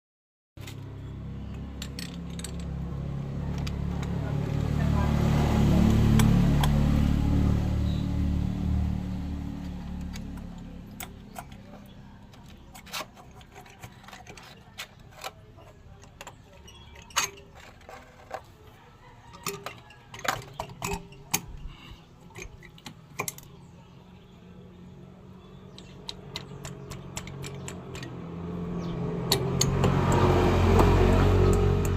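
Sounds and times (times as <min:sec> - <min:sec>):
motorcycle engine humming: 0:00.6 - 0:14.0, 0:20.5 - 0:31.9.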